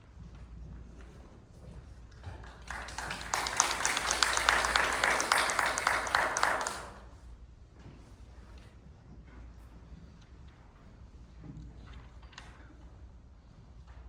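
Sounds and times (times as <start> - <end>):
audience applauding: 2.6 - 7.0.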